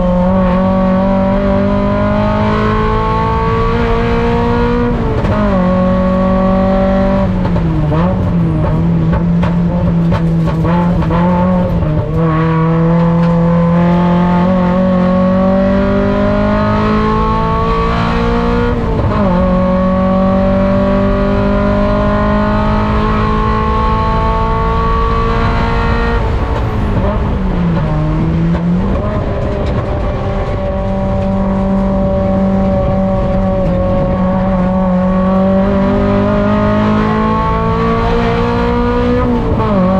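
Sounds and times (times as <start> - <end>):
race car engine under load: 0.0 - 39.9.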